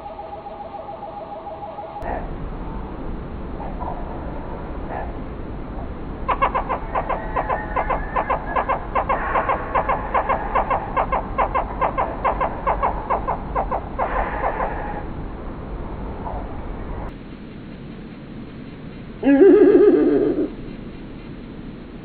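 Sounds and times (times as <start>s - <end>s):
bird calling in rapid notes: 6.3s - 15.1s, 19.2s - 20.6s.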